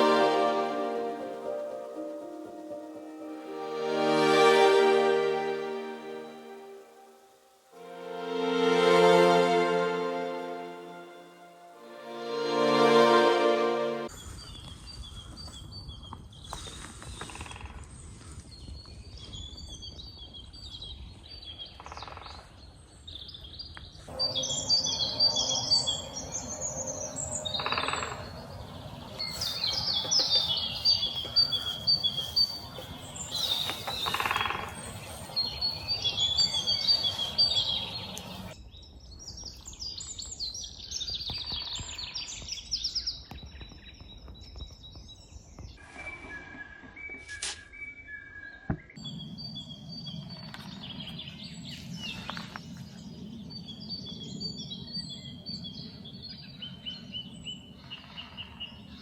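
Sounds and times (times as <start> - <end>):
steady low background noise: 0.0 - 14.5, 24.1 - 40.0
songbirds chirping and singing: 14.0 - 59.0.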